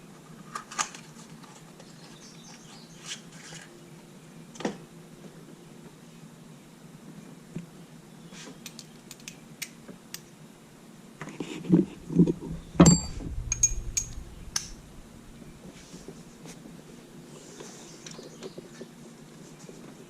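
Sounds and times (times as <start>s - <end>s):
heavier knocks: 11.9s - 15.8s
light metallic clicks and clinks: 12.4s - 15.1s.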